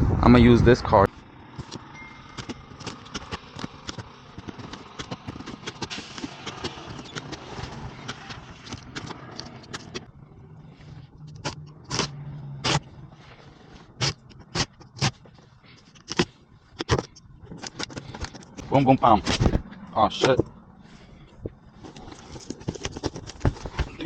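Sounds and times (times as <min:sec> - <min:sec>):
cardboard box scraping and clicking: 0:02.4 - 0:10.1, 0:21.8 - 0:24.0.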